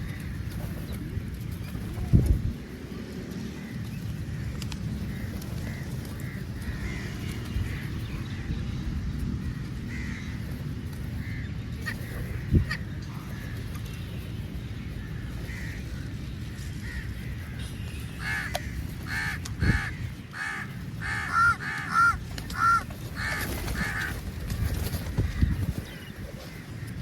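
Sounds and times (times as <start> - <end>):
crows cawing: 5.1 - 7.4, 9.9 - 10.4, 15.0 - 16.1, 16.8 - 24.2.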